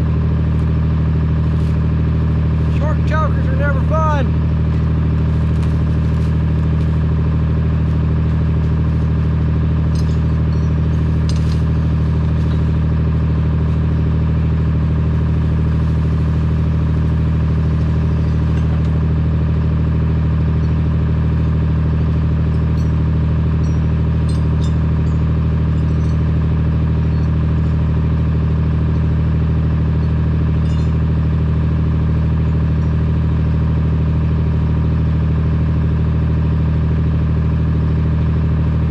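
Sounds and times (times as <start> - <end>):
vehicle engine droning: 0.0 - 38.9.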